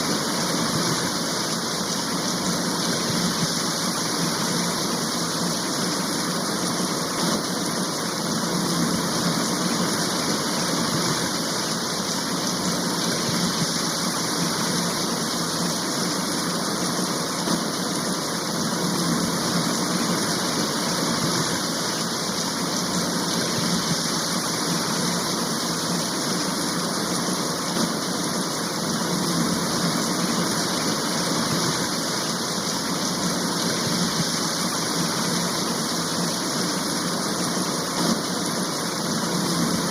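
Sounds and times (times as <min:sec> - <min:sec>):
rain downpour: 0:00.0 - 0:39.9.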